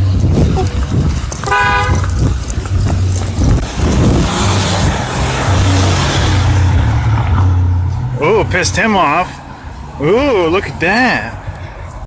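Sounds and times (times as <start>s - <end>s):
traffic rumble: 0.0s - 12.0s
vehicle passing with tyre noise: 0.0s - 12.0s
car horn beep: 1.5s - 2.0s.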